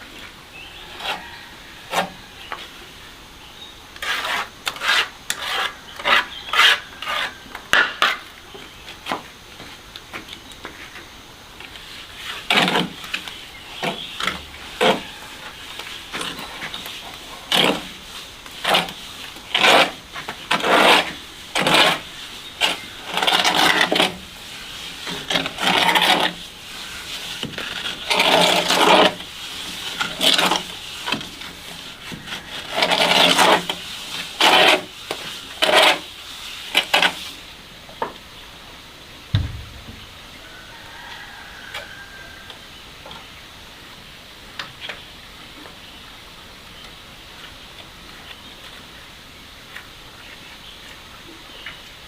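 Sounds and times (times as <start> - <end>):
rough scraping strokes: 0.6 - 2.8, 4.0 - 8.4, 11.7 - 37.5
low thump: 39.3 - 40.3.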